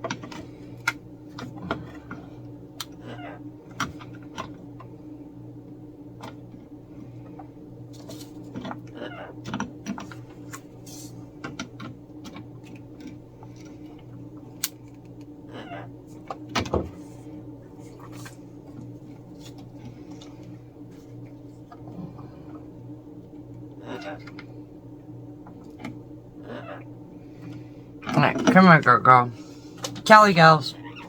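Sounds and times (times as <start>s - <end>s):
low hum: 0.0s - 31.0s
parrot calls: 3.0s - 3.5s, 8.9s - 9.4s, 15.4s - 16.0s, 23.8s - 24.4s, 26.4s - 26.9s, 30.7s - 31.0s.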